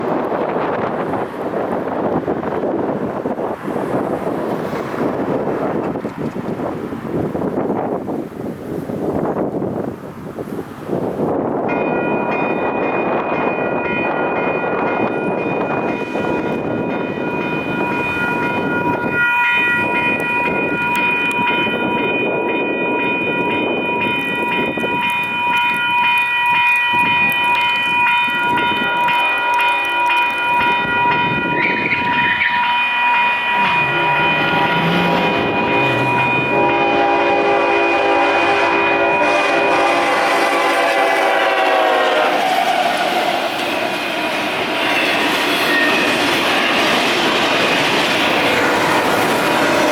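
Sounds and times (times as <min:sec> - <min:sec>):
freight train rumbling: 0:00.0 - 0:49.9
crossing bells ringing: 0:11.2 - 0:49.9
locomotive horn: 0:28.9 - 0:46.1.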